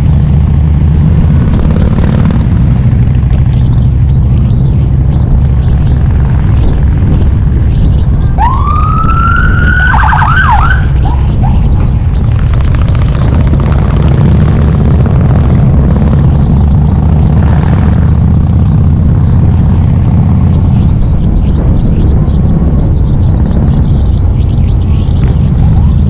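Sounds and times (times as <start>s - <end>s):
motorcycle engine running: 0.0s - 26.0s
warbling siren: 3.3s - 12.8s, 15.7s - 26.0s.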